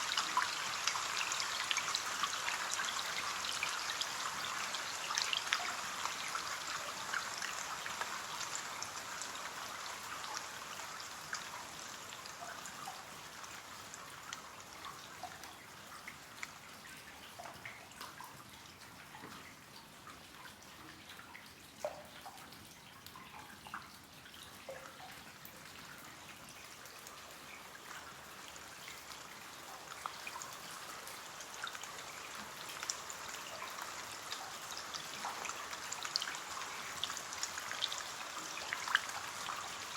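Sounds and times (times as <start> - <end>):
rain pattering on a window: 0.0 - 39.9
water drops ticking and dripping: 0.0 - 39.9.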